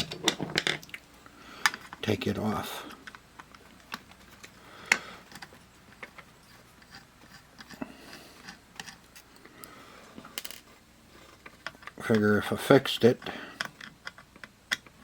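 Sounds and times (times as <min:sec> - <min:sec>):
plastic parts being handled: 0:02.9 - 0:09.5, 0:10.2 - 0:12.4.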